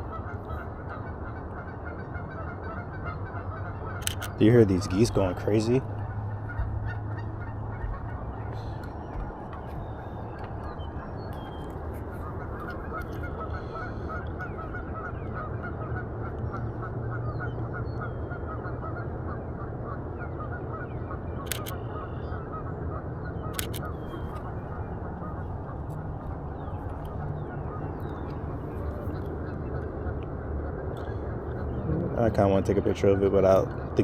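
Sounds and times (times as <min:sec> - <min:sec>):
geese honking: 0:00.0 - 0:34.0
low background rumble: 0:00.0 - 0:34.0
sharp clicks: 0:04.0 - 0:04.4, 0:21.5 - 0:21.8, 0:23.5 - 0:24.0.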